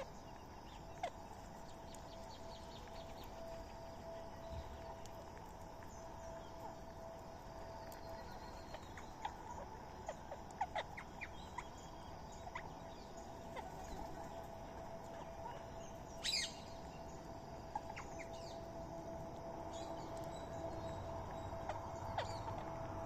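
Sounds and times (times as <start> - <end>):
birds chirping: 0.0 - 23.0
faint steady hum: 0.0 - 23.0
shrill bird call: 15.4 - 17.0, 19.7 - 22.8.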